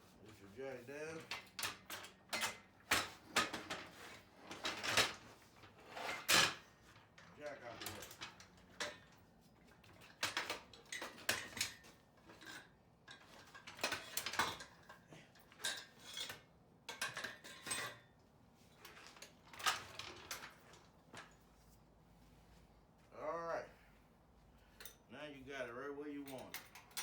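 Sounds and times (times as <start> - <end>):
metal parts clinking and clanking: 1.1 - 18.0, 18.8 - 21.4, 26.2 - 27.0.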